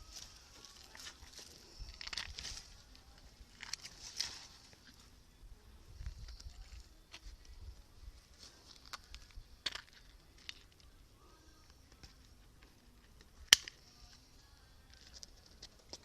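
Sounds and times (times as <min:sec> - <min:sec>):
small rustles: 0:00.0 - 0:05.2.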